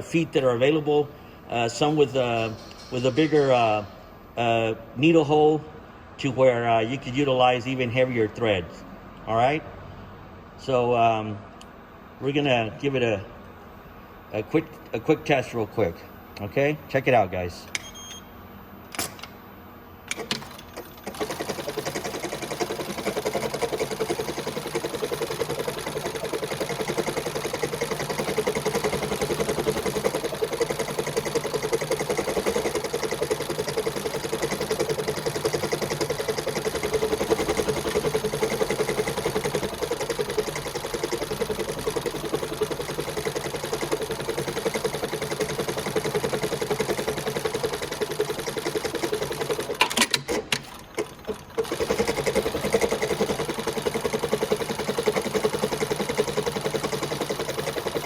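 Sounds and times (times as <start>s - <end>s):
sewing machine needle rattling: 20.1s - 58.0s.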